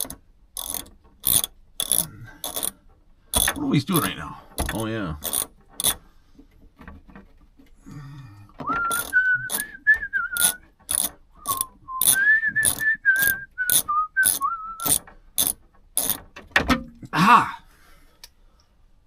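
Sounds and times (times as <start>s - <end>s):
ratchet wrench clicking: 0.0s - 6.0s, 8.9s - 9.7s, 10.4s - 16.2s
man whistling a tune: 8.6s - 10.6s, 11.4s - 14.9s.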